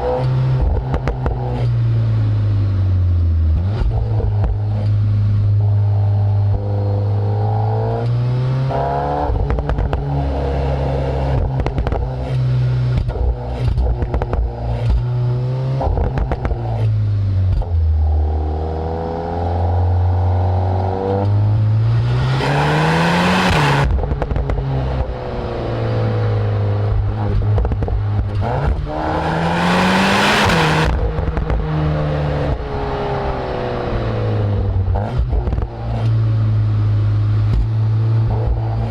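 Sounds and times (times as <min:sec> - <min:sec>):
exhaust pops and crackles: 0:00.0 - 0:01.8, 0:03.6 - 0:05.8, 0:09.3 - 0:10.2, 0:11.2 - 0:17.9, 0:23.4 - 0:25.3, 0:26.9 - 0:29.2, 0:30.4 - 0:32.8, 0:34.6 - 0:36.2, 0:37.3 - 0:38.9
car engine revving through gears: 0:00.0 - 0:38.9.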